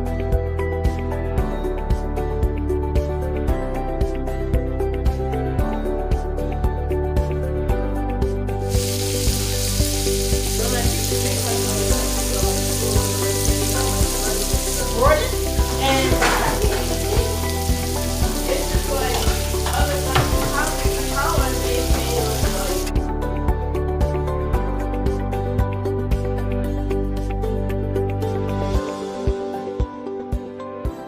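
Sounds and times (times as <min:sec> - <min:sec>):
food sizzling in a pan: 0:08.7 - 0:22.9.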